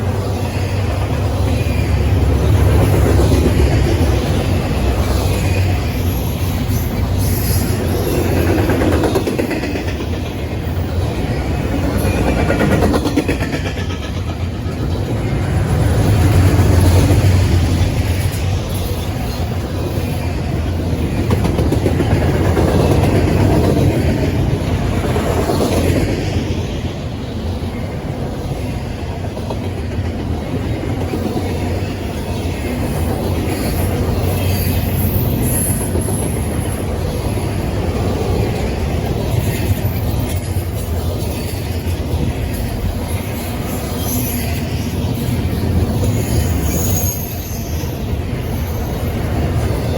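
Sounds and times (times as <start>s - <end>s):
train rumbling past: 0.0s - 49.9s
high wheel squeal: 5.1s - 8.6s, 33.5s - 36.9s, 43.2s - 49.9s.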